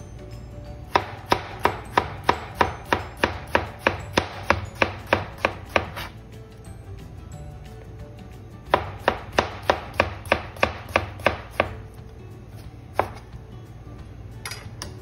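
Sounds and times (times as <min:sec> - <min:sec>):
knife chopping on cutting board: 0:00.9 - 0:06.2, 0:08.7 - 0:11.9, 0:12.6 - 0:13.4.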